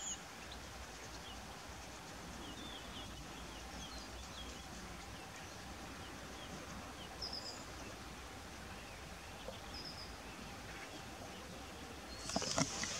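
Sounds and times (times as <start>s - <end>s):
outdoor background noise: 0.0s - 12.9s.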